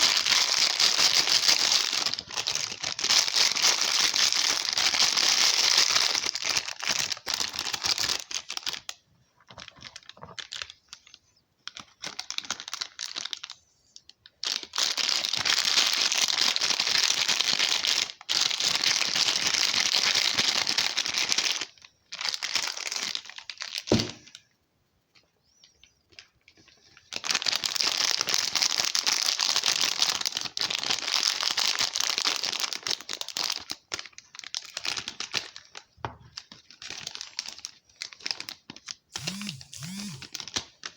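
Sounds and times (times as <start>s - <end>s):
soap wrappers crinkling and tearing: 0.0s - 24.5s, 25.5s - 40.9s.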